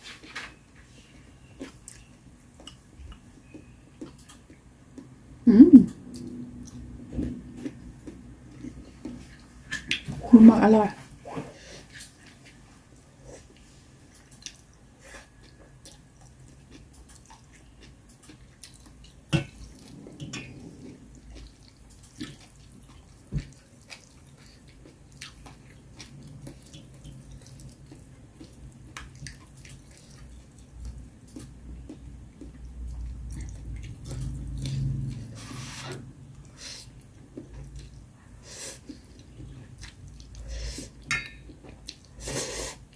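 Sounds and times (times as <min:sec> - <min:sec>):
chewing: 0:11.8 - 0:42.6
low hum: 0:19.4 - 0:22.2.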